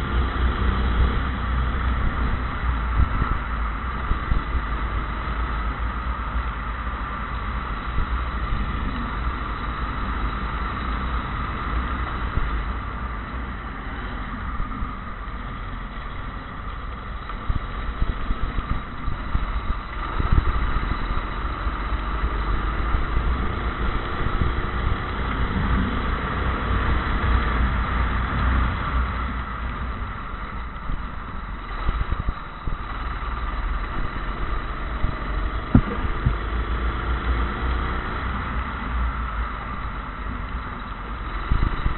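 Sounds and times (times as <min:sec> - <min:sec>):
low rumble and rushing noise: 0:00.0 - 0:41.9
kart engine revving: 0:14.2 - 0:41.9.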